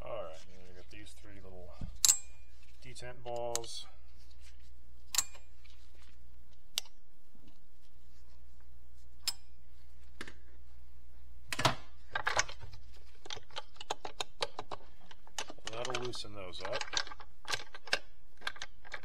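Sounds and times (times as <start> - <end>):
metal clicks of hand tools: 2.0 - 2.3, 5.1 - 5.5.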